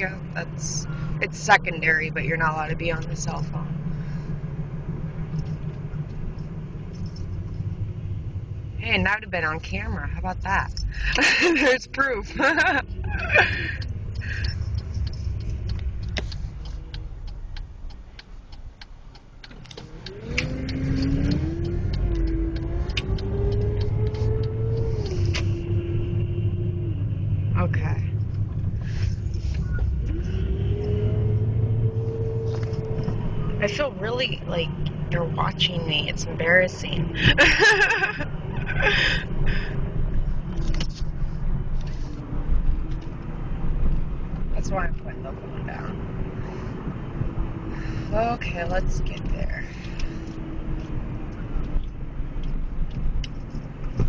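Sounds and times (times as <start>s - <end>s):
rising engine whine: 0.0s - 18.1s, 19.5s - 54.0s
car engine and road rumble: 0.0s - 54.0s
steady clicking: 12.3s - 25.6s.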